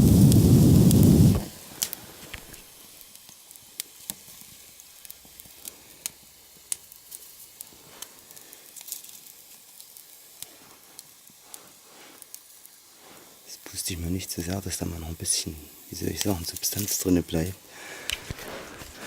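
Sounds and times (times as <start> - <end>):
campfire crackling and popping: 0.0 - 19.0
faint fire hiss: 0.0 - 19.0.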